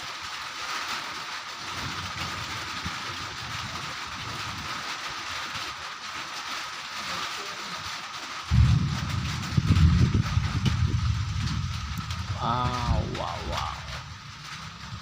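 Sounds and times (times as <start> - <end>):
steady rain: 0.0 - 15.0
strong wind gusts rumbling: 8.5 - 15.0.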